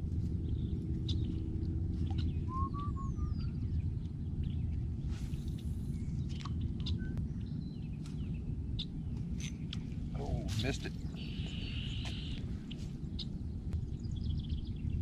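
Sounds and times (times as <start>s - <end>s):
steady low rumble: 0.0s - 15.0s
birds chirping: 0.4s - 15.0s.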